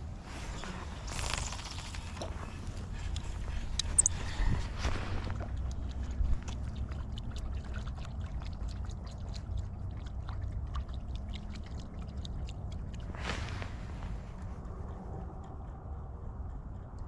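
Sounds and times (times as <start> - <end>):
low rumble: 12.6 - 17.0.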